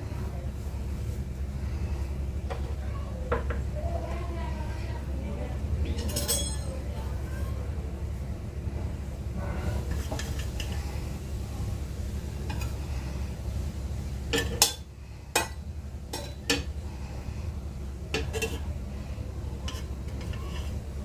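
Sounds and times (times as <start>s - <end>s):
metal spoon scraping a pot: 6.0s - 6.7s, 9.7s - 10.9s, 14.3s - 14.8s, 18.1s - 18.7s, 19.6s - 21.0s.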